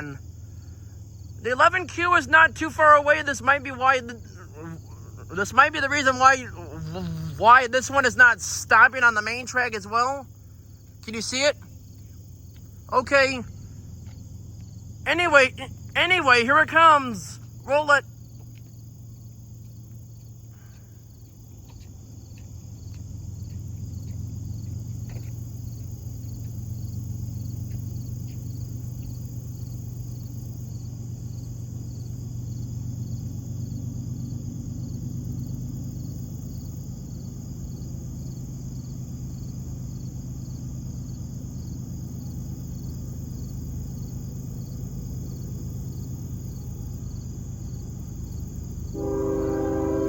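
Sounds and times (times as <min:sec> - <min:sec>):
crickets chirping: 0:00.0 - 0:50.0
low rumble of diesel locomotives: 0:00.0 - 0:50.0.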